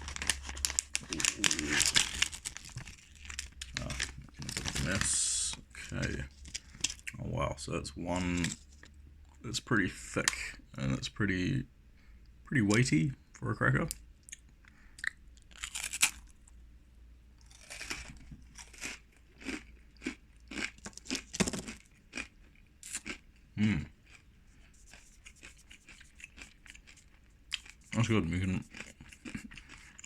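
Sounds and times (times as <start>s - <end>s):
crunching and chewing cracker: 0.0s - 7.2s, 14.2s - 16.6s, 17.4s - 30.0s.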